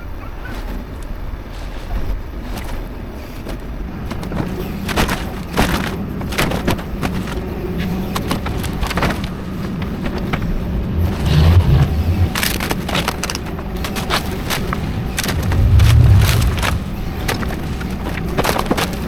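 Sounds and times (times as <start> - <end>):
excavator engine running: 1.3 - 19.0
debris cracking and crashing: 2.4 - 19.0
low rumble: 14.7 - 18.2.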